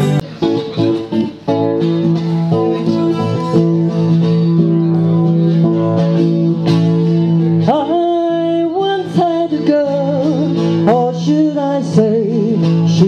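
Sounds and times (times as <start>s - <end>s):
guitar playing plucked chords: 0.0s - 13.0s.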